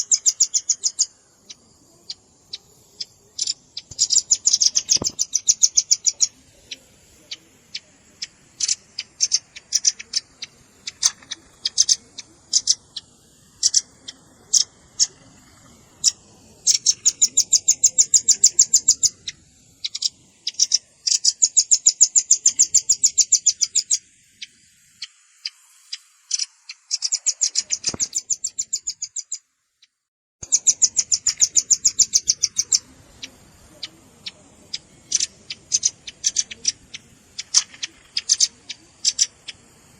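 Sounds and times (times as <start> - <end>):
nuthatch chip notes and trills: 0.0 - 29.4, 30.4 - 39.9.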